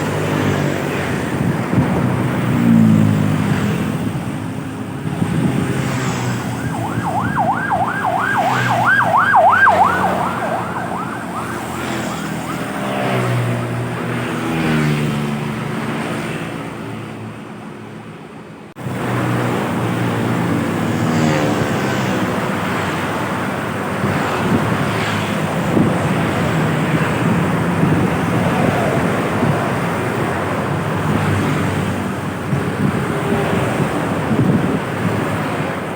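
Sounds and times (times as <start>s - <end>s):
heavy road traffic rumble: 0.0s - 35.9s
emergency siren yelping: 6.3s - 13.6s.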